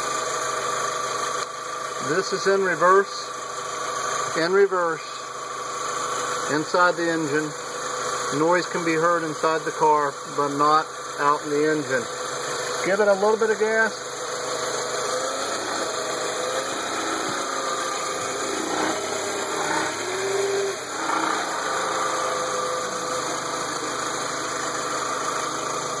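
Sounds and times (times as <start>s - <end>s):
faint reverse gear whine: 0.0s - 26.0s
car engine hum: 12.2s - 26.0s.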